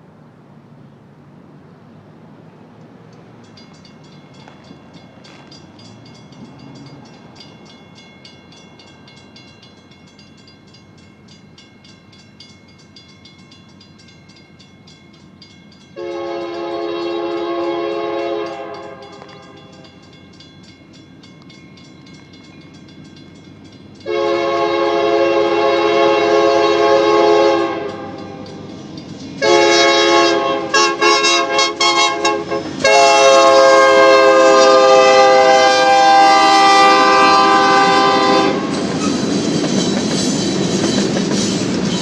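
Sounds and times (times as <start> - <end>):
locomotive approaching: 0.0 - 42.0
locomotive bell ringing: 3.1 - 42.0
train air horn blasts: 16.0 - 19.9, 24.0 - 28.6, 29.4 - 38.8.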